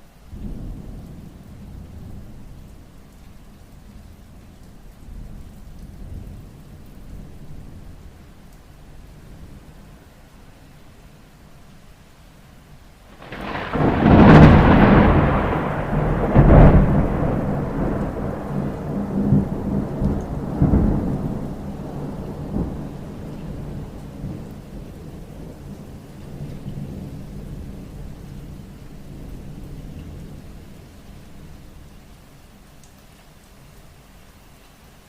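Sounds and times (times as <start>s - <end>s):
rain falling: 0.0s - 35.0s
thunder rumbling: 13.1s - 31.9s
thunder cracking: 13.2s - 24.4s.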